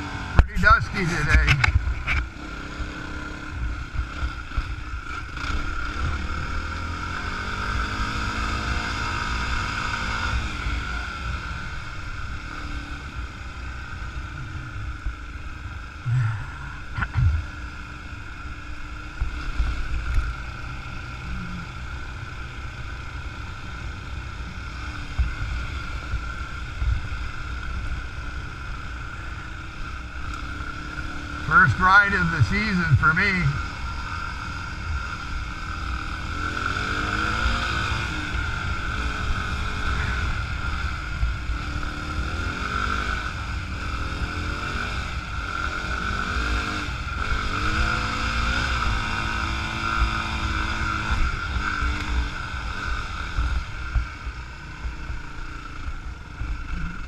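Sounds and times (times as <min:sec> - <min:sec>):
wind and ground noise: 0:00.0 - 0:57.0
dirt bike engine accelerating: 0:15.9 - 0:18.1, 0:29.2 - 0:57.0.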